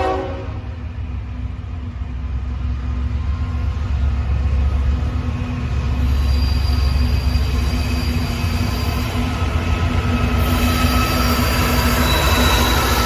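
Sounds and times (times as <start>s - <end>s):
train rumbling past: 0.0s - 13.0s
wheel squeal: 6.0s - 13.0s.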